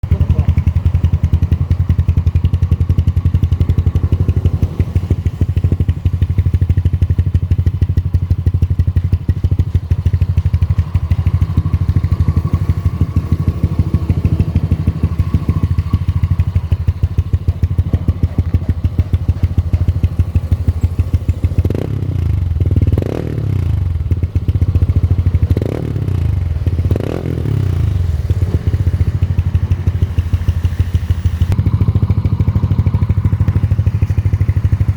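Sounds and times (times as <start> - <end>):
scooter engine idling: 0.0 - 34.9
scooter engine revving: 0.0 - 34.9.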